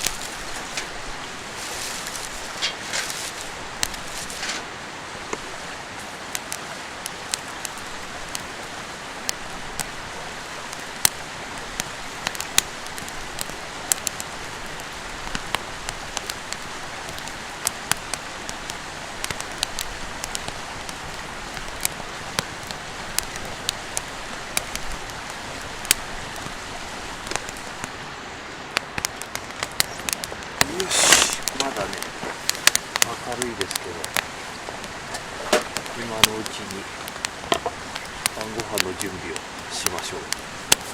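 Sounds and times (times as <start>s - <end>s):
campfire crackling: 0.0s - 40.9s
mountain stream rushing: 0.0s - 40.9s.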